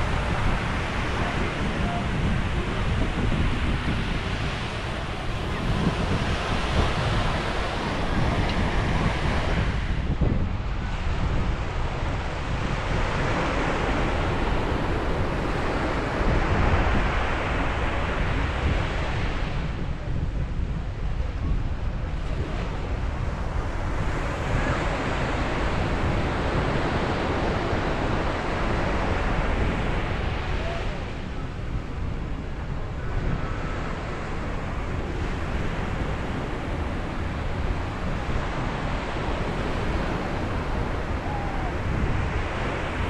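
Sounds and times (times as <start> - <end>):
ocean waves breaking: 0.0 - 19.8, 21.9 - 43.0
wind on microphone: 0.0 - 43.0.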